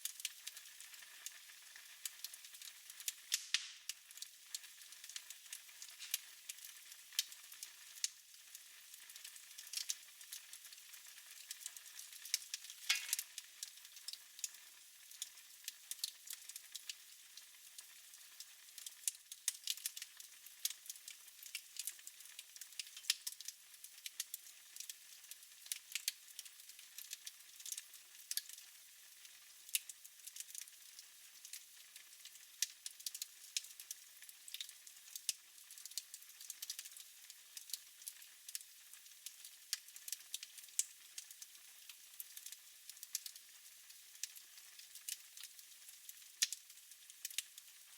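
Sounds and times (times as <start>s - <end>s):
wood fire crackling: 0.0s - 17.0s, 18.7s - 28.6s, 29.7s - 31.6s, 32.6s - 37.0s, 37.6s - 38.6s, 39.3s - 41.5s, 42.2s - 43.4s, 44.2s - 47.4s
loud fire crack: 3.3s - 4.2s, 12.6s - 13.3s.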